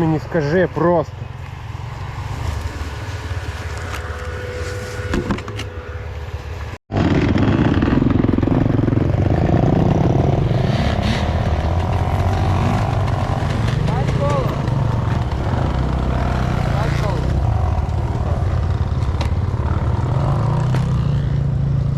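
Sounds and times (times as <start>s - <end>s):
dirt bike engine idling and revving: 0.0s - 21.9s.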